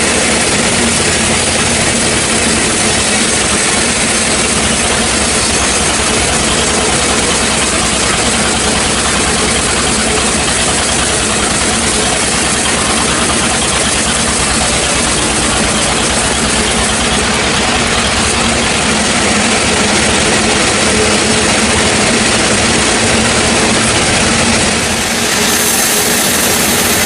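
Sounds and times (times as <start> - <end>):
sawmill engine pulsing: 0.0 - 27.0.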